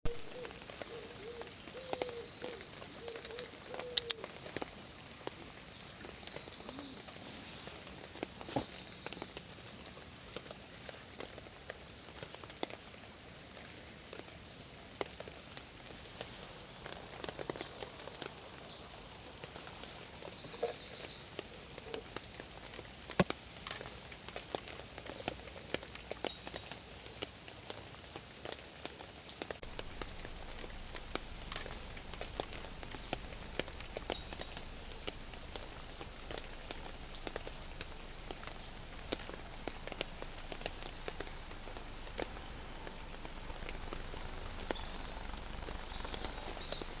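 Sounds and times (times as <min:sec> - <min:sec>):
steady rain with drop hits: 0:00.0 - 0:47.0
low rumble: 0:29.6 - 0:47.0.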